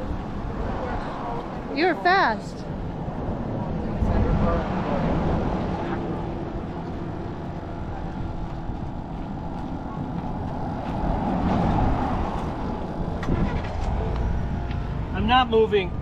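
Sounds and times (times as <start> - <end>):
vehicle engine running: 3.4 - 16.0.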